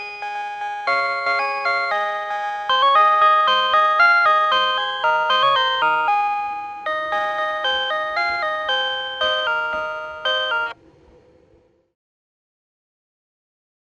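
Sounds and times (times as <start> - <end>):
electronic chime melody: 0.0 - 10.8.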